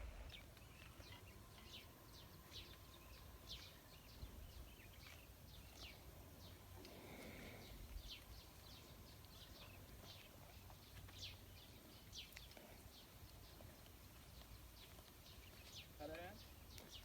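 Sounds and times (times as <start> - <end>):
faint low rumble: 0.0 - 11.8.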